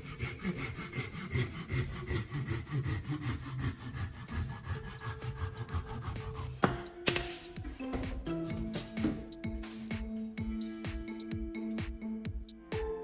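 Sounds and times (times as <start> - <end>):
sawing with quick strokes: 0.0 - 6.8.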